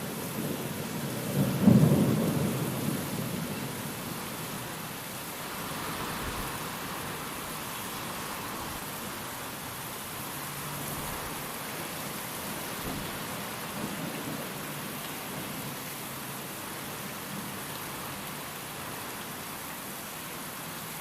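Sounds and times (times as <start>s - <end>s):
rain: 0.0s - 21.0s
wind: 0.0s - 21.0s
distant thunder rumble: 1.2s - 4.6s.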